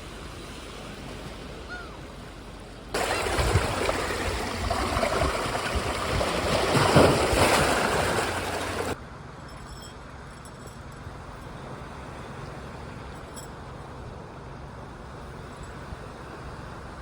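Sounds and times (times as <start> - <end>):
sea water surging against shore: 0.0 - 9.0.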